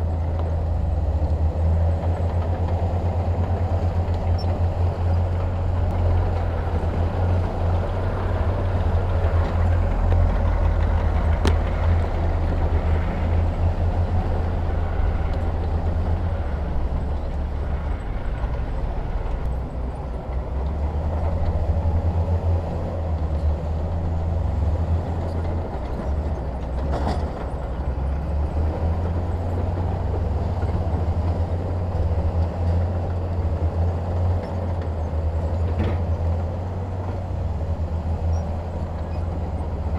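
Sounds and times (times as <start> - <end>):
diesel machinery engine rumble: 0.0 - 39.9
brief knock: 11.4 - 12.1.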